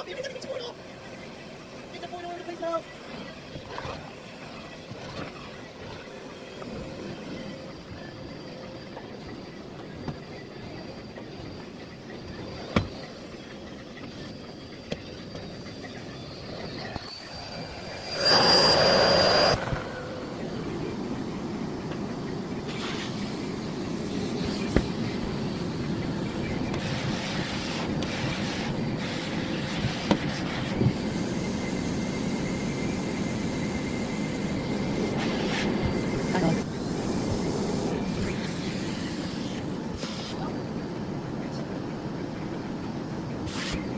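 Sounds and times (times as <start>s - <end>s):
vacuum cleaner running: 16.8s - 40.7s.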